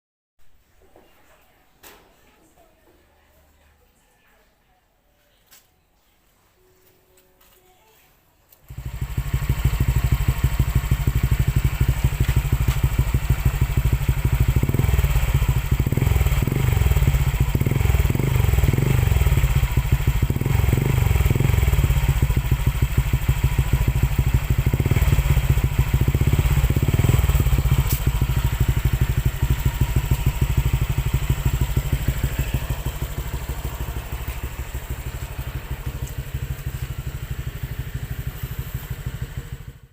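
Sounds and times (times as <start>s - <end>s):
scooter engine idling and revving: 8.6s - 39.9s.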